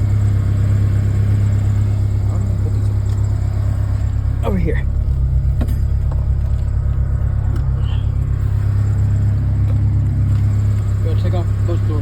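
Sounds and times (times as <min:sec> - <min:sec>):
low rumble: 0:01.8 - 0:10.9.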